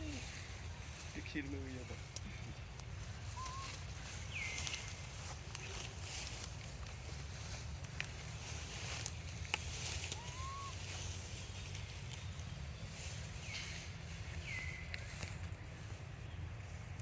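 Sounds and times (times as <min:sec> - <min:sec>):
chirp-like animal calls: 0:03.1 - 0:05.1, 0:09.8 - 0:12.1.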